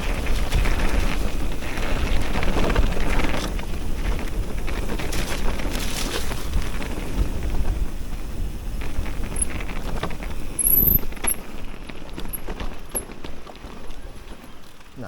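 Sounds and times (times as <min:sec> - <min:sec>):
bike rattling: 0:00.0 - 0:15.0
wind on microphone: 0:00.0 - 0:15.0.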